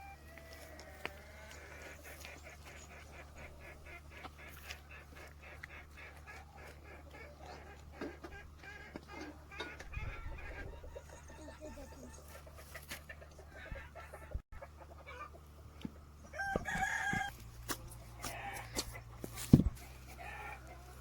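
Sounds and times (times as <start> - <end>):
chickens clucking: 0.0 - 21.0
rooster crowing: 16.3 - 17.3.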